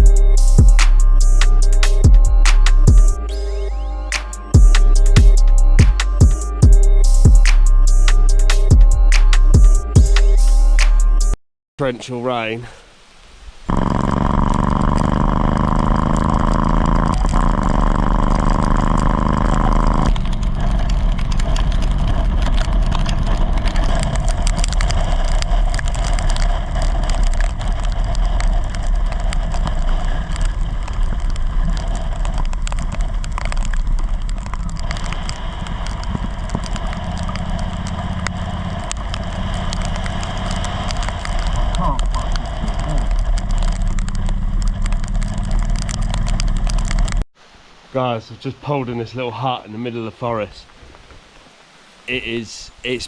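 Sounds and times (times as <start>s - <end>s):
motorcycle engine running: 0.0s - 3.3s, 4.1s - 10.4s, 13.7s - 47.2s
wind and rain noise: 11.8s - 53.0s.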